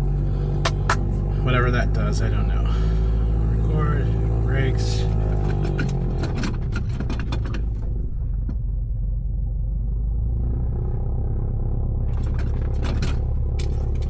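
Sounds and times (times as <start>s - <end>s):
steady low hum: 0.0s - 5.6s.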